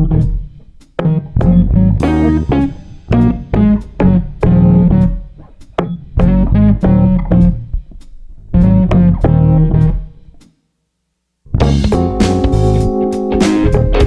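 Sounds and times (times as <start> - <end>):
plucked guitar over bass line: 0.0 - 0.4, 1.4 - 5.2, 6.2 - 7.7, 8.6 - 10.1, 11.6 - 14.0.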